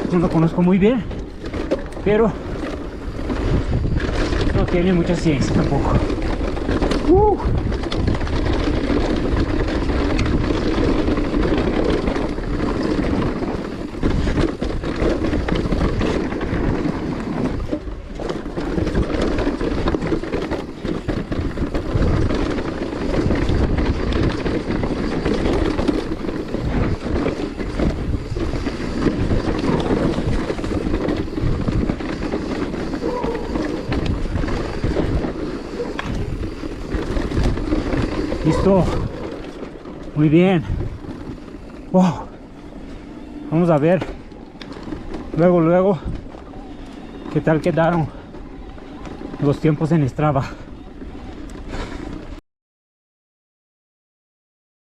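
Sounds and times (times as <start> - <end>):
bike rattling over bumps: 0.0 - 52.4
bike tyres rolling on dirt: 0.0 - 52.4
wind on microphone: 1.0 - 43.5.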